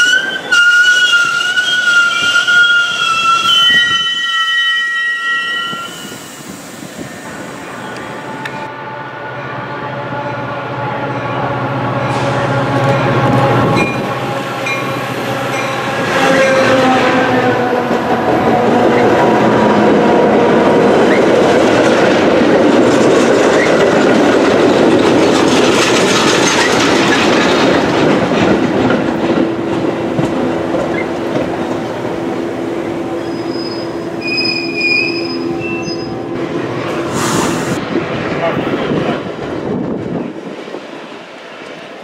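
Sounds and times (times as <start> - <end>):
high-pitched wheel squeal: 0.0 - 6.3, 33.2 - 36.3
train cars rumbling and clacking: 0.0 - 42.0.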